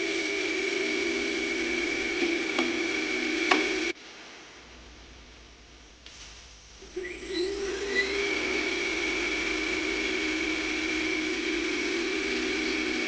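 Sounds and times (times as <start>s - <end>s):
lathe motor whine: 0.0s - 4.0s, 6.8s - 13.0s.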